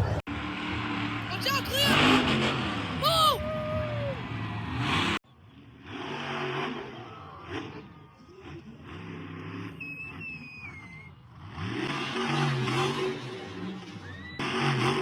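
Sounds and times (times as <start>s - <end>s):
truck engine revving: 0.0s - 15.0s
short falling whistle: 9.8s - 11.2s.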